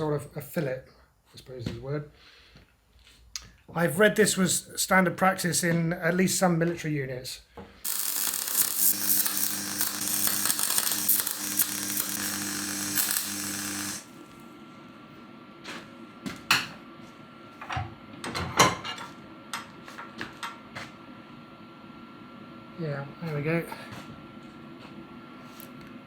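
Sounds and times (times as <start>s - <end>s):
welding crackle: 7.8s - 14.5s
electrical hum: 7.9s - 26.0s.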